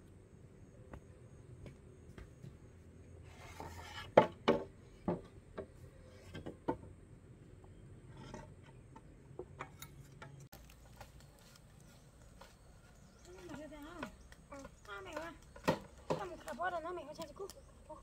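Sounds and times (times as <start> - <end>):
scraping rustle: 3.2 - 4.2
objects knocking and clattering: 4.1 - 5.7.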